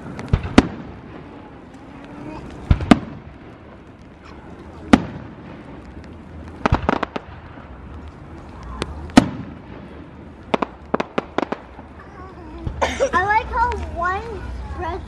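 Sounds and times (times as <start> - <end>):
firework shells bursting: 0.0 - 8.1
small firework pops: 0.0 - 12.8.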